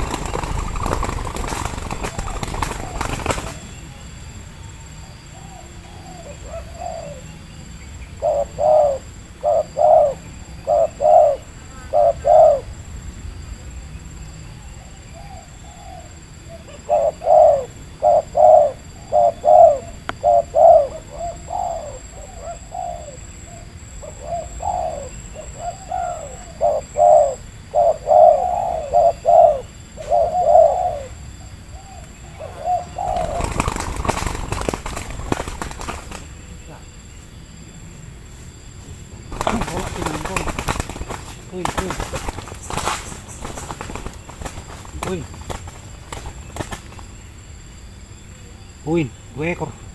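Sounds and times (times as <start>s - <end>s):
doves cooing: 0.0s - 49.9s.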